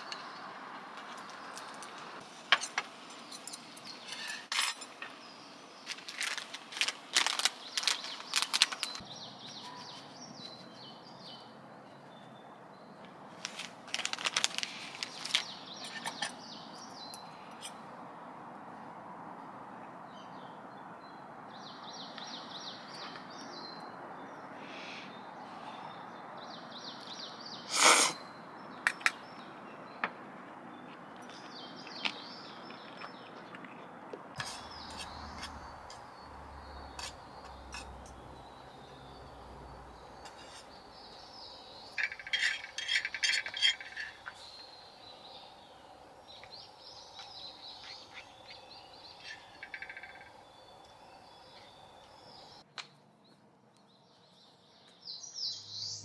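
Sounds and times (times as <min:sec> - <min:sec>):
metal utensils and cookware clinking: 0:02.6 - 0:05.0, 0:41.9 - 0:44.5
birds chirping: 0:14.6 - 0:17.8, 0:34.4 - 0:52.6.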